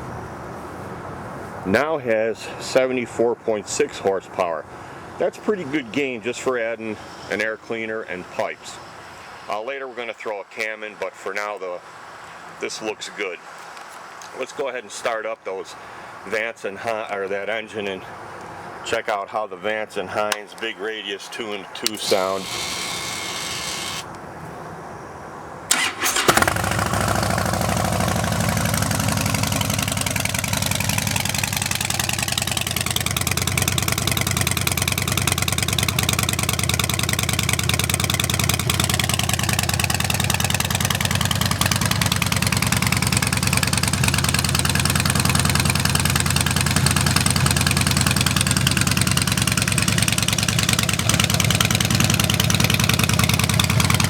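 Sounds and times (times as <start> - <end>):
motorcycle engine starting and idling: 21.8 - 24.1, 25.7 - 54.0.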